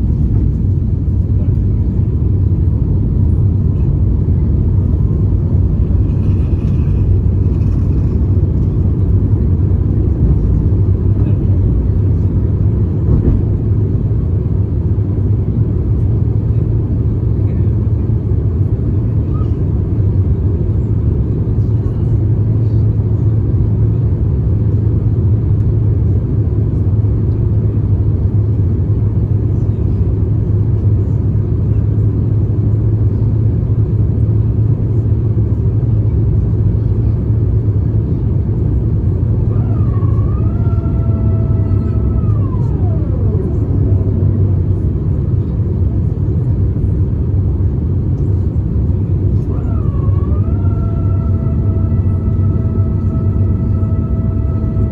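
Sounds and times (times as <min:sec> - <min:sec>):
gliding whine: 0:00.0 - 0:13.6, 0:38.5 - 0:54.9
aircraft cabin rumble: 0:00.0 - 0:54.9.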